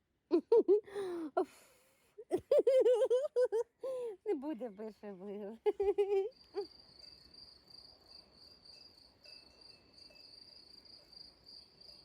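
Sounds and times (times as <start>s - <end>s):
crickets chirping: 5.9s - 12.0s.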